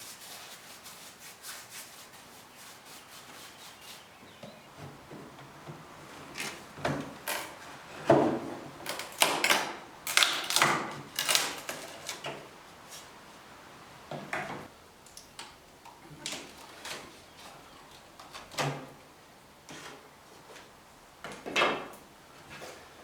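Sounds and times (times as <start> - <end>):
knocks and scrapes on wood: 4.4 - 8.7.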